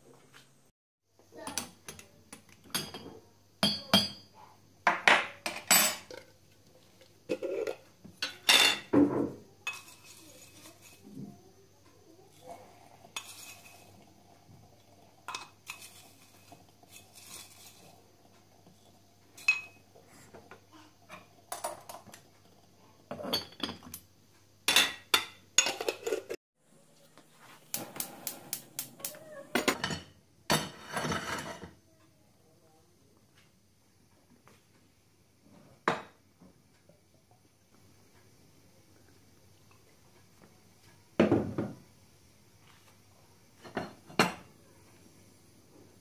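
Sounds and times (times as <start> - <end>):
dishes and cutlery clinking: 1.4 - 4.3, 4.9 - 6.3, 7.3 - 11.2, 13.1 - 14.0, 19.4 - 22.3, 23.1 - 24.1, 24.7 - 26.4, 29.5 - 31.8.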